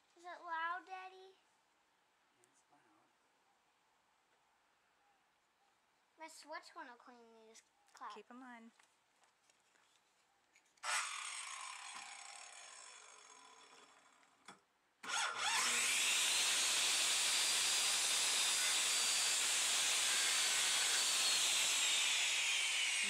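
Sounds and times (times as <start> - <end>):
electric power saw cutting wood: 10.8 - 14.4, 15.0 - 23.0.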